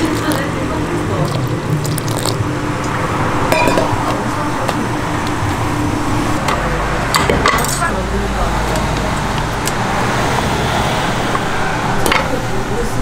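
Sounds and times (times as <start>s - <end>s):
steady background hum: 0.0s - 13.0s
utensils and dishes clinking: 3.5s - 4.8s, 6.4s - 8.0s, 12.0s - 12.4s.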